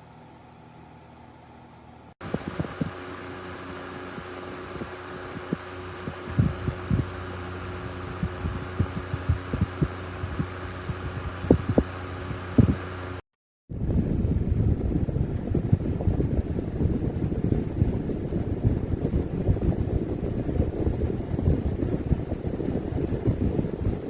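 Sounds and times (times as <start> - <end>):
desk fan running: 0.0 - 24.0
irregular low thumps: 6.1 - 7.2, 7.8 - 12.8, 13.7 - 24.0.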